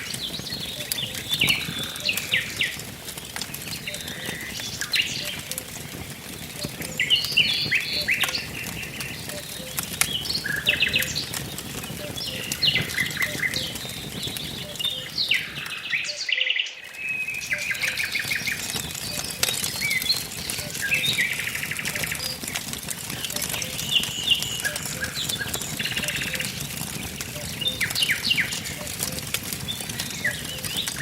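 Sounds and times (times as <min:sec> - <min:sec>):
birds chirping and trilling: 0:00.0 - 0:31.0
wood fire crackling: 0:00.0 - 0:31.0.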